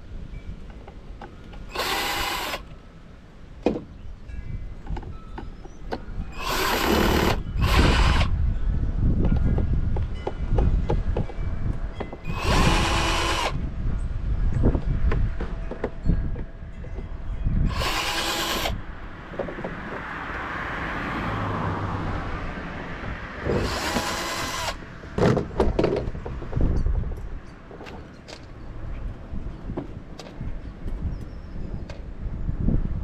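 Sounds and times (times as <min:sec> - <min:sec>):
power drill running: 0:01.7 - 0:02.6, 0:06.4 - 0:08.3, 0:12.3 - 0:13.6, 0:17.7 - 0:18.8, 0:23.5 - 0:24.8.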